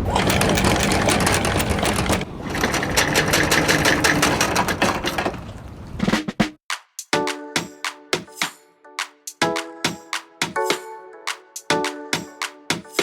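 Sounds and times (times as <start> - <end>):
boat engine clattering: 0.0 - 6.0.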